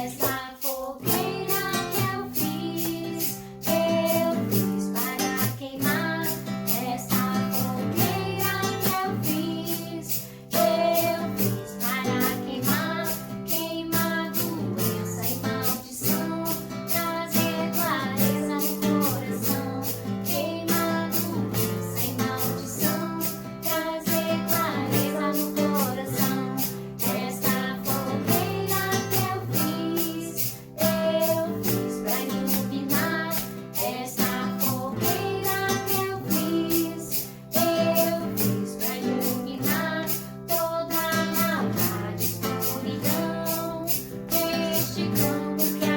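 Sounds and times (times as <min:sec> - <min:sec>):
person singing a hymn: 0:00.0 - 0:45.9
strummed acoustic guitar: 0:00.0 - 0:45.9.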